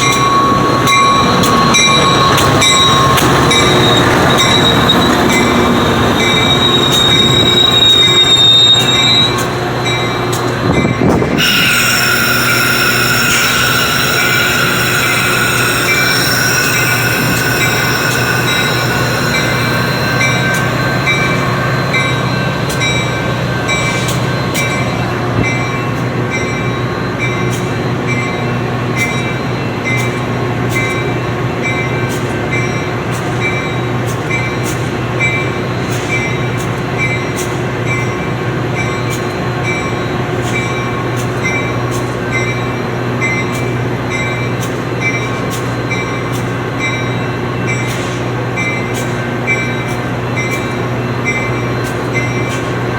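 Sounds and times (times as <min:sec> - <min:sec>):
train wheels and brakes squealing: 0:00.0 - 0:52.9
low diesel engine hum: 0:09.4 - 0:24.2
bell ringing: 0:09.8 - 0:25.0.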